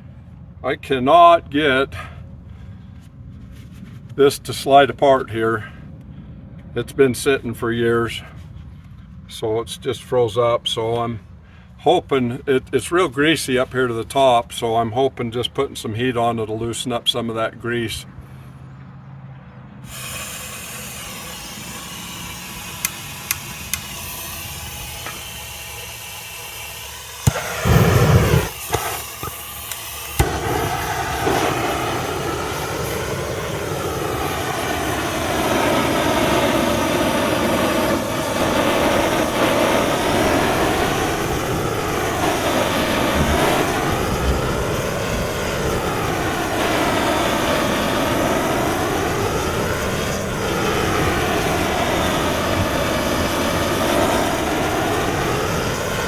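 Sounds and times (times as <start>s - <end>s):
gas torch hiss: 19.9s - 56.0s
torch flame roar: 19.9s - 56.0s
igniter clicks: 22.2s - 31.5s.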